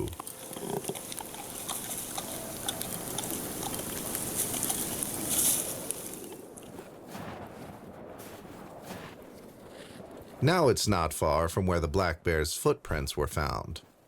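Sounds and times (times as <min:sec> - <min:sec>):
panda chewing dry bamboo: 0:00.0 - 0:07.0.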